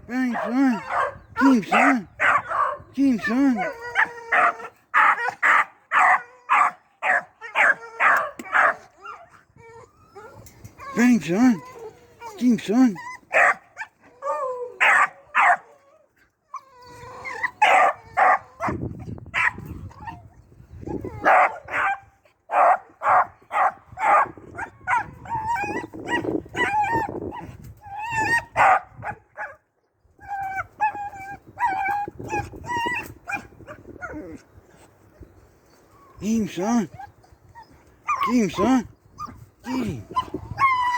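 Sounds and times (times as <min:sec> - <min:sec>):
puppy barking and yipping: 0:00.4 - 0:01.2, 0:03.9 - 0:08.9, 0:13.3 - 0:13.9, 0:14.8 - 0:15.7, 0:17.4 - 0:18.8, 0:21.2 - 0:27.0.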